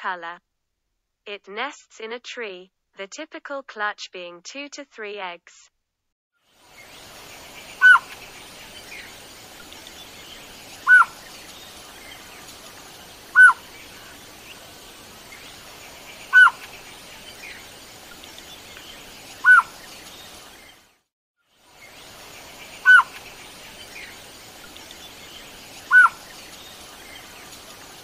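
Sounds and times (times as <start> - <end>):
faint outdoor hiss: 6.5 - 28.0
bird calling down-slurred note: 7.6 - 8.2, 9.9 - 12.0, 13.3 - 14.2, 15.4 - 16.8, 18.8 - 20.0, 22.7 - 23.3, 25.8 - 26.5.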